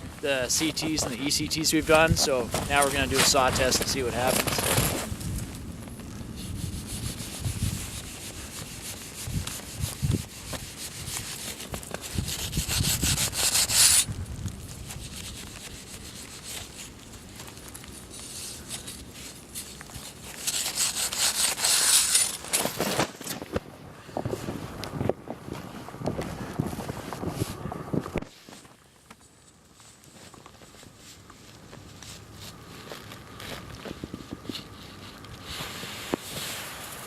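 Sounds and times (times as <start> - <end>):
snow saw rasping: 0.3 - 5.1, 6.4 - 14.1, 18.1 - 22.8.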